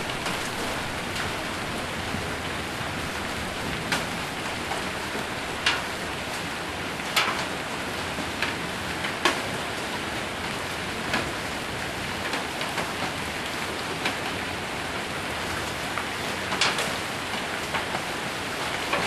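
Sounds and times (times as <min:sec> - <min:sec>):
hailstones tapping: 0:00.0 - 0:06.1
heavy rain on a roof: 0:00.0 - 0:19.0.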